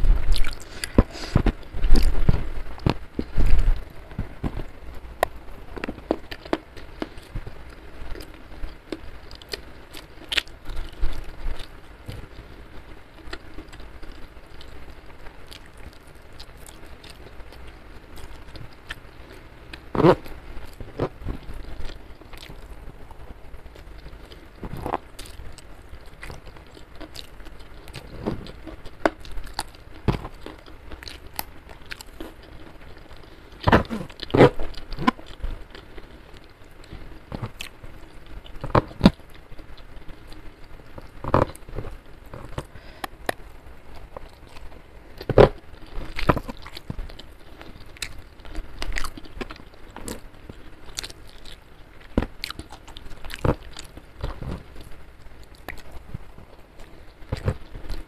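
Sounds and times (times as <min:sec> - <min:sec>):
person chewing with lip smacks: 0:00.2 - 0:07.4, 0:24.0 - 0:32.6.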